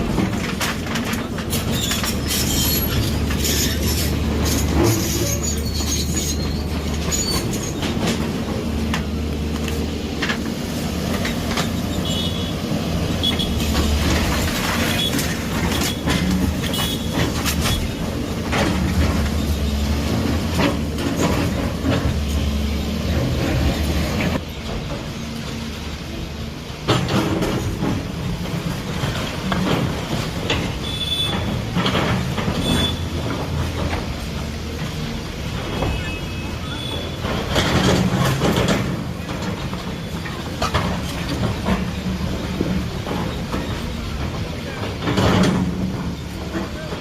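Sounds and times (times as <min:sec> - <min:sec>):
diesel engine rumbling: 0:00.0 - 0:47.0
metal knocks and clanks: 0:13.2 - 0:25.2, 0:26.8 - 0:35.0, 0:36.9 - 0:47.0.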